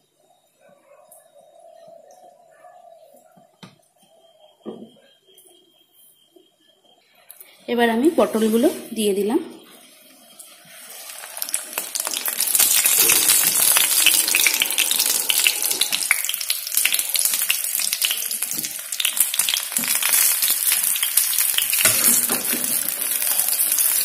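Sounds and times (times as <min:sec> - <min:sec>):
vegetables sizzling in hot oil: 0:09.9 - 0:24.0.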